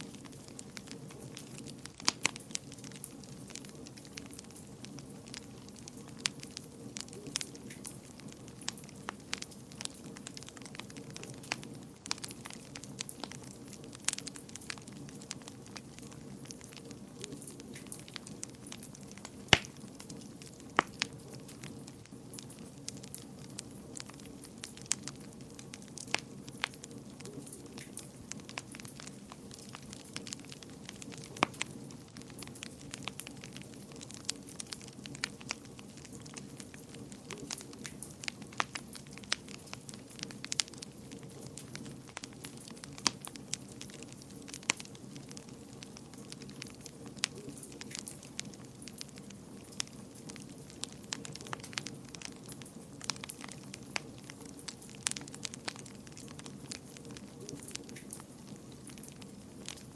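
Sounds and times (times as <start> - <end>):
fire crackles and pops: 0.0 - 59.9
fire flame rumble: 0.0 - 59.9.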